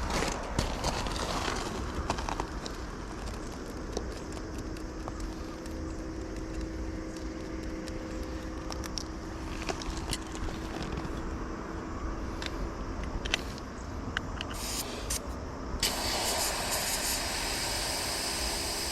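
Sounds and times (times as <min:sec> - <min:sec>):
sharp clicks: 0:03.2 - 0:10.5.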